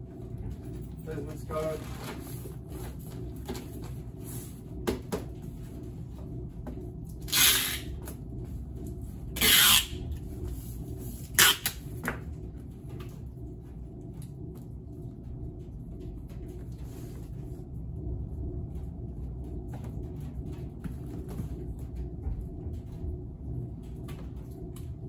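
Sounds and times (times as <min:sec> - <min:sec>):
packing tape tearing: 0:07.3 - 0:07.9, 0:09.4 - 0:09.9, 0:11.4 - 0:11.8.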